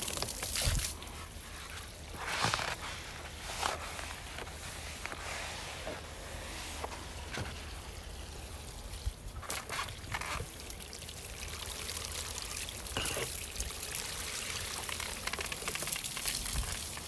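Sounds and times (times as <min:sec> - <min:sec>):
water spraying on siding: 0:00.0 - 0:17.0.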